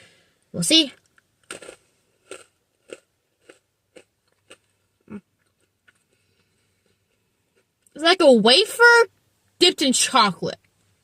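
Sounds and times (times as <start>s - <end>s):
crunchy candy chewing: 1.0s - 7.8s.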